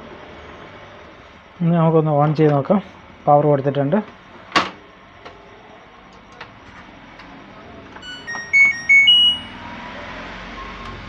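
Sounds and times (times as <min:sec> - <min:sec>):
electronic beeping melody: 0:08.0 - 0:09.6.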